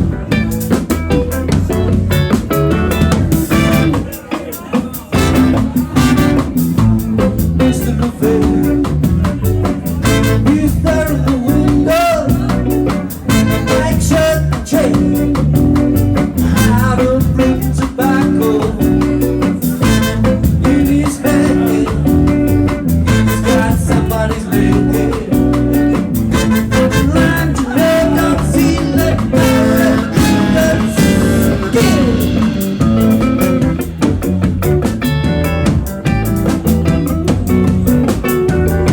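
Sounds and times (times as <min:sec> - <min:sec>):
drums: 0:00.0 - 0:38.9
guitars: 0:00.0 - 0:38.9
person singing: 0:03.5 - 0:33.5.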